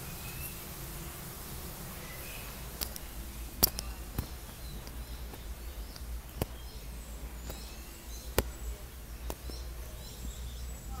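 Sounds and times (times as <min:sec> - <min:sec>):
steady low hum: 0:00.0 - 0:11.0
faint bird chirps: 0:02.0 - 0:11.0
sharp clicks: 0:02.8 - 0:06.7.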